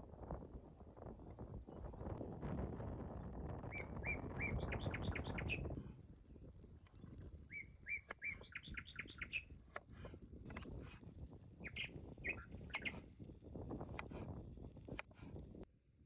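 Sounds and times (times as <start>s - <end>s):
songbird chirping: 3.7s - 5.7s, 7.5s - 9.5s, 11.6s - 13.0s.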